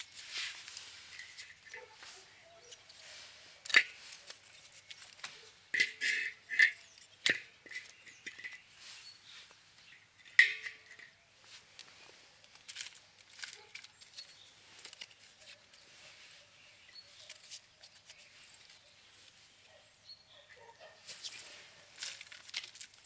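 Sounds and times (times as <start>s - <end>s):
firewood being split: 21.9s - 23.0s.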